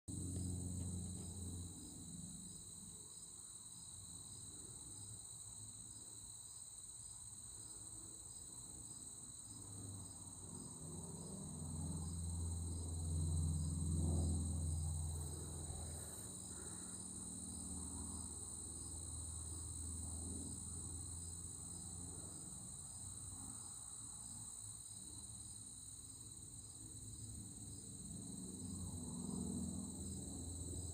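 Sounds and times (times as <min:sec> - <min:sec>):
distant aircraft rumble: 0:00.1 - 0:02.6, 0:09.6 - 0:22.4, 0:28.0 - 0:30.9
crickets and insects chirring: 0:00.2 - 0:30.9.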